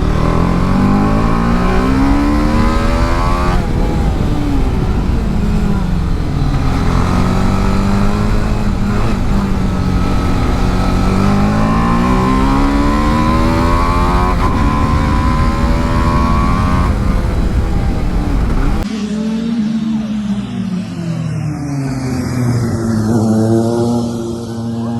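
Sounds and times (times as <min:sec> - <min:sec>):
wind rush on microphone: 0:00.0 - 0:19.8
motorcycle engine accelerating: 0:00.0 - 0:24.9.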